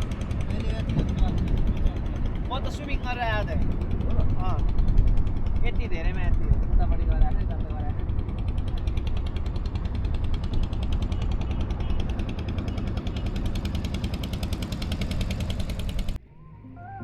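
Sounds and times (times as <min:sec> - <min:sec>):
motorboat engine running: 0:00.0 - 0:16.2
soft guitar music: 0:16.2 - 0:17.0.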